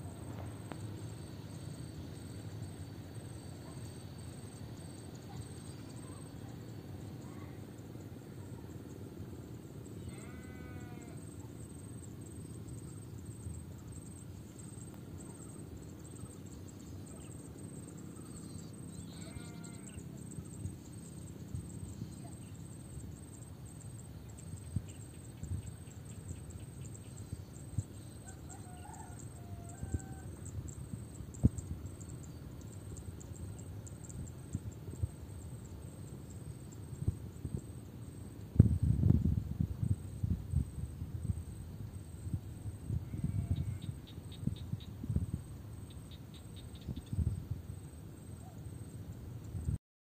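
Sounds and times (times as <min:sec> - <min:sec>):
livestock bleating: 0:10.0 - 0:11.2, 0:19.1 - 0:20.0, 0:43.0 - 0:43.9
steady low rumble: 0:36.4 - 0:48.0.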